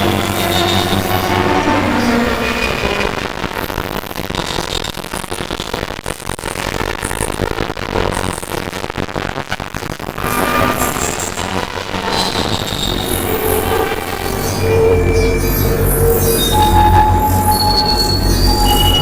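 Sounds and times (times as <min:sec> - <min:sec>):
crackling electronic noise: 0:00.0 - 0:19.0
layered steady tones: 0:10.2 - 0:19.0
low droning hum: 0:10.2 - 0:19.0.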